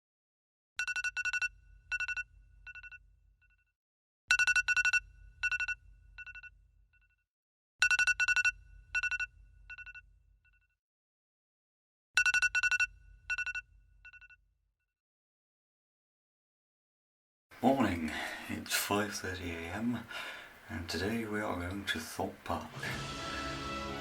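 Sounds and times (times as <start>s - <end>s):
bell-like phone ringtone: 0.8s - 3.0s, 4.3s - 6.5s, 7.8s - 10.0s, 12.2s - 14.2s.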